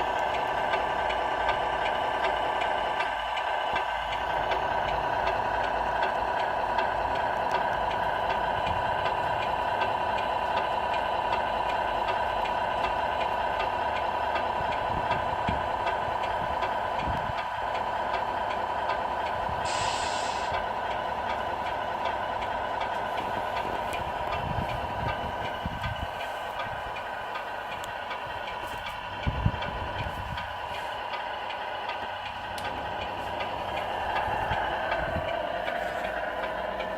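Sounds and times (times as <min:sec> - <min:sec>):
model truck running: 0:00.0 - 0:36.9
short hiss: 0:19.6 - 0:20.5.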